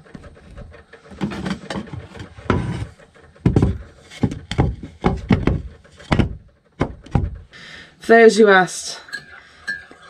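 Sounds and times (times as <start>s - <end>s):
wooden hatch board scraping: 0.0s - 7.5s
knocks of wood on wood: 0.1s - 7.5s.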